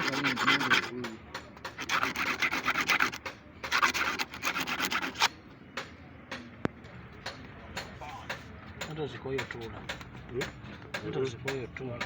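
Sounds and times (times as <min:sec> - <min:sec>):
scraping strokes on hard surface: 0:00.0 - 0:05.4.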